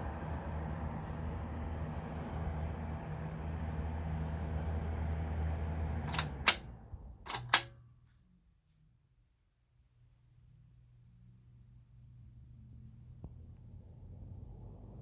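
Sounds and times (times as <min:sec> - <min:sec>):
ventilation fan motor hum: 0:00.0 - 0:07.8
fan switch clicks: 0:06.1 - 0:07.8.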